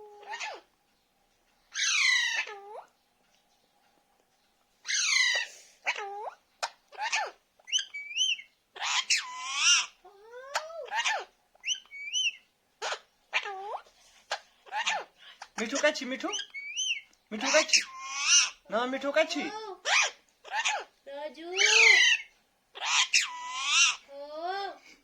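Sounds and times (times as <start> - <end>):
parakeet wavering chirps: 0.0 - 0.7, 1.7 - 2.9, 4.8 - 18.7, 19.8 - 24.1
parakeet screeching: 0.2 - 0.7, 1.7 - 2.8, 4.9 - 18.6, 19.8 - 20.9, 21.5 - 24.0.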